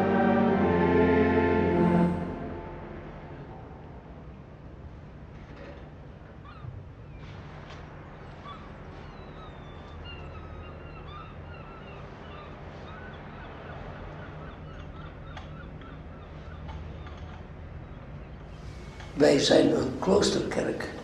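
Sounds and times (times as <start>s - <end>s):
low background hum: 0.0s - 21.0s
small birds chirping: 6.4s - 20.4s.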